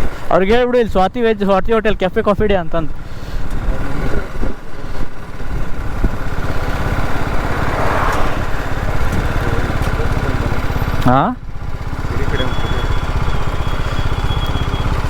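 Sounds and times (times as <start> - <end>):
motorcycle engine thrum: 2.9 - 15.0
rush of noise: 5.6 - 10.7.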